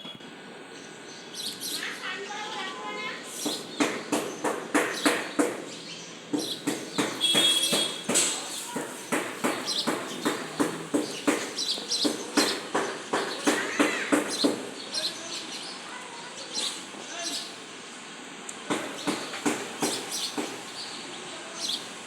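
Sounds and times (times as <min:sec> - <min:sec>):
bird chirp: 0:00.0 - 0:13.7, 0:18.9 - 0:22.0
sharp knocks: 0:03.4 - 0:14.8, 0:18.7 - 0:20.7.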